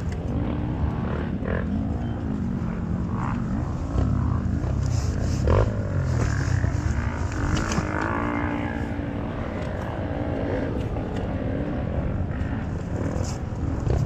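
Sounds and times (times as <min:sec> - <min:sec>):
off-road motorcycle engines revving: 0:00.0 - 0:14.0.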